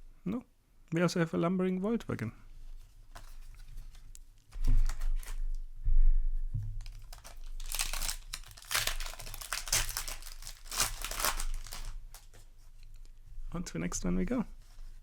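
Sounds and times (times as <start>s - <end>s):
cards being handled: 2.7s - 5.5s, 6.9s - 13.1s
foil wrapper crinkling and tearing: 3.1s - 5.5s, 6.8s - 13.2s.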